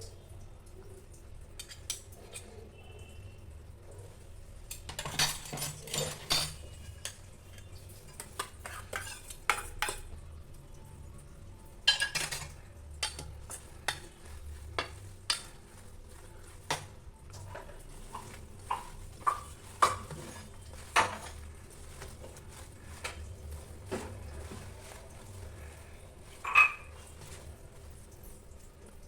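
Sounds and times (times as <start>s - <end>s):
metal spoon scraping a pan: 1.6s - 2.8s, 4.7s - 10.2s, 11.9s - 27.5s
food sizzling faintly: 5.4s - 29.0s.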